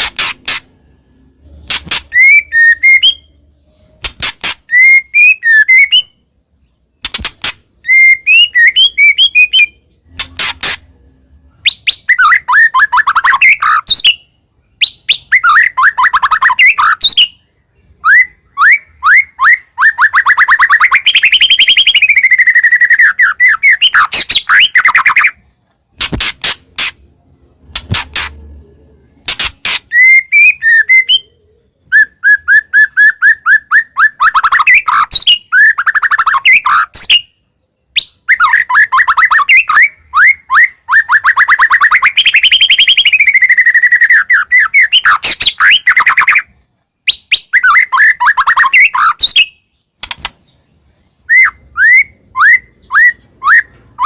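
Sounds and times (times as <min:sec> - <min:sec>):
sharp clicking bird notes: 0:00.0 - 0:00.8, 0:01.4 - 0:03.1, 0:04.0 - 0:05.0, 0:07.0 - 0:10.9, 0:20.6 - 0:28.6, 0:29.2 - 0:31.3, 0:50.0 - 0:50.6
bird singing chirps and trills: 0:00.0 - 0:54.0.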